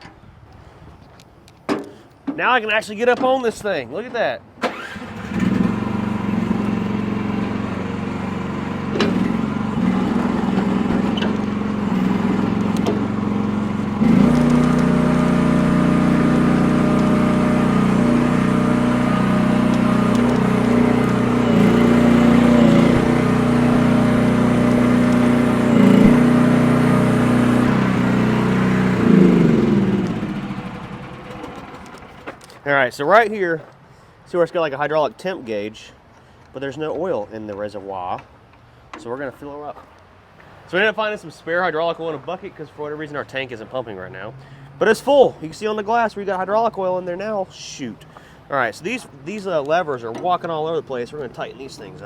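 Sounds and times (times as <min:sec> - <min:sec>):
mini excavator engine running: 0:04.6 - 0:32.5.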